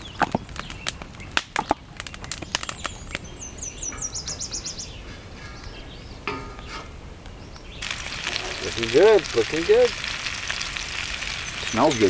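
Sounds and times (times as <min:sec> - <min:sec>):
bird trilling: 0:02.5 - 0:12.0
food sizzling in frying: 0:07.8 - 0:12.0.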